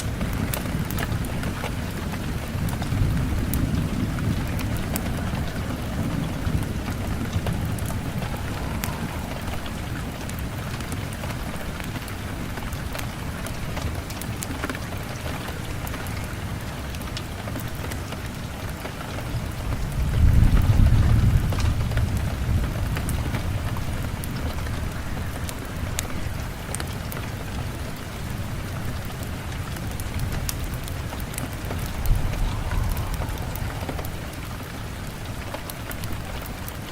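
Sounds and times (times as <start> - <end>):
fireplace crackles: 0.0 - 20.5, 24.0 - 36.9
steady rain falling: 0.0 - 36.9
low rumble: 2.6 - 11.8, 31.3 - 36.7.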